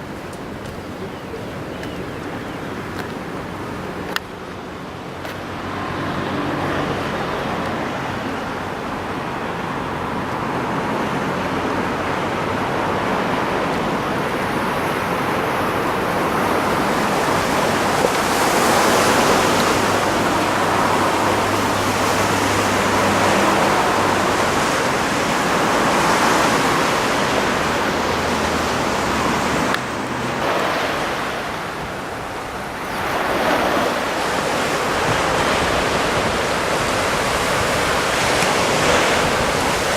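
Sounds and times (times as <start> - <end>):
surf rushing: 0.0 - 39.9
wind: 0.0 - 39.9.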